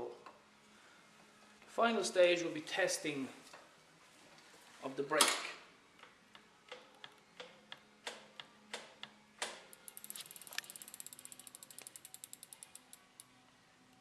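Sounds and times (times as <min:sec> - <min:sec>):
bicycle freewheel ticking: 0:09.7 - 0:13.3.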